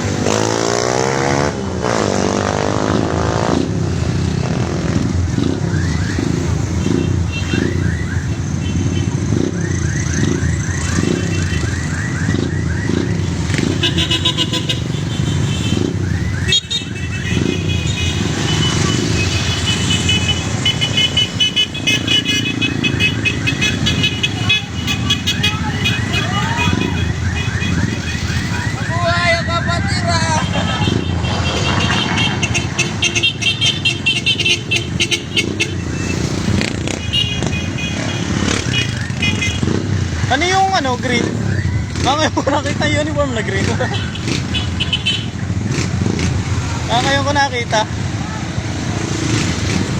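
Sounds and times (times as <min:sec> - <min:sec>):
motorcycle engines running: 0:00.0 - 0:49.9
pulsing horn beeps: 0:04.8 - 0:42.2.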